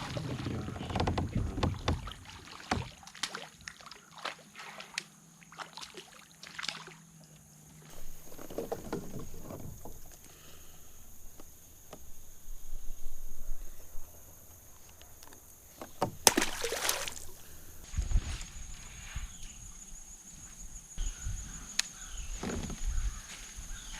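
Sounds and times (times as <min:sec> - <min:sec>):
knocks and clicks on kayak hull: 0:00.0 - 0:03.0, 0:07.9 - 0:10.6, 0:15.2 - 0:16.5.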